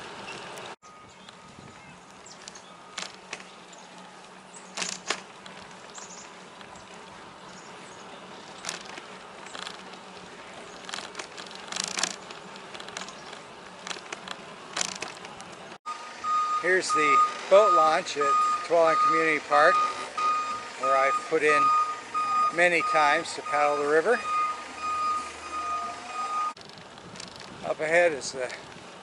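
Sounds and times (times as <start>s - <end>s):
bicycle ride buzzing: 0.0s - 17.8s, 23.6s - 27.6s
bicycle clicks and rattles: 2.1s - 15.8s, 26.6s - 29.0s.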